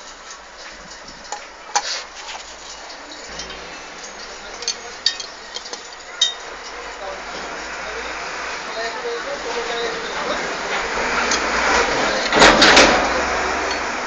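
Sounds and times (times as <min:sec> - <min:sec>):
metallic clinks and taps: 0:02.6 - 0:06.8.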